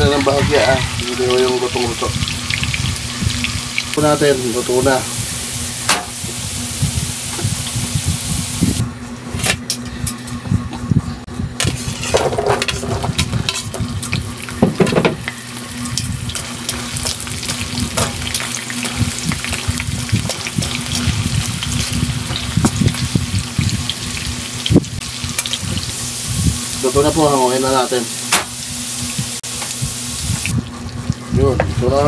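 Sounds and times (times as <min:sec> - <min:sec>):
carrots sizzling in hot oil: 0:00.0 - 0:08.8, 0:15.2 - 0:30.5.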